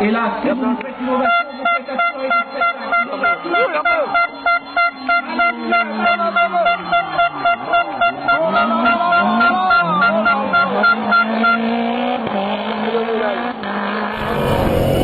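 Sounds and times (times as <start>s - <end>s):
car horn tooting: 1.2s - 12.2s
rally car engine revving: 4.9s - 15.0s.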